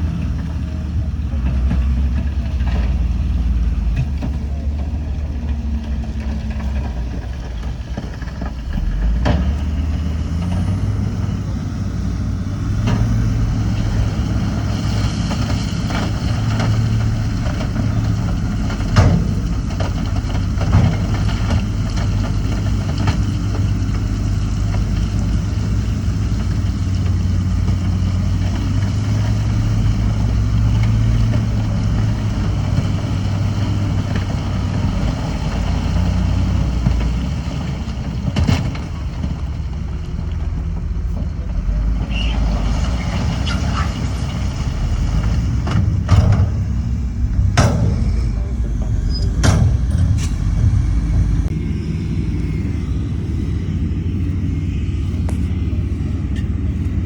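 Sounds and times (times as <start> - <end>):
heavy diesel engine running: 0.0 - 57.0
sharp metallic knocks: 45.8 - 50.6.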